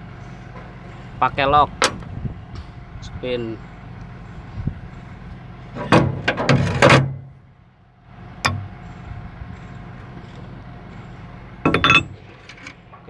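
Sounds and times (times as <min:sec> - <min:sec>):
steady background hum: 0:00.0 - 0:13.0
metal tools knocking and clinking: 0:08.5 - 0:08.9, 0:11.7 - 0:12.8.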